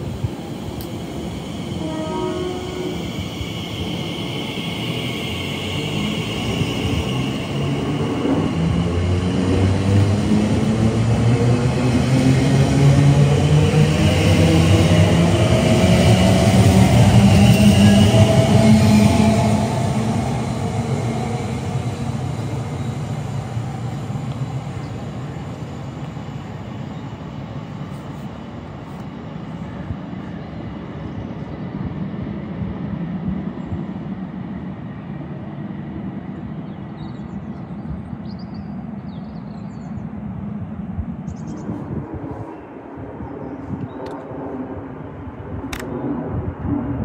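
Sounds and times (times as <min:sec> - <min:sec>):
electric train pulling away: 0:00.0 - 0:27.8.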